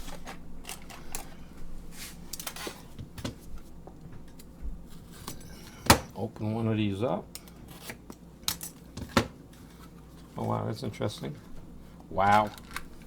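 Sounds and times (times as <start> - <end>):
hands rustling packaging: 12.1 - 13.0.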